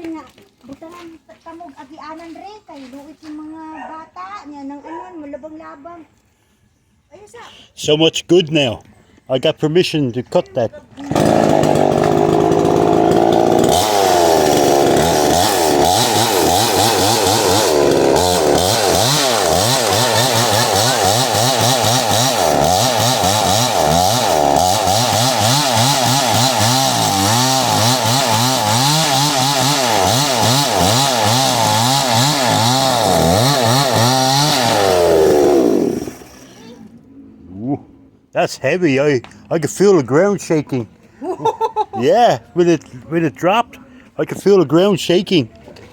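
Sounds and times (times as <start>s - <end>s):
chainsaw cutting wood: 11.0s - 36.8s.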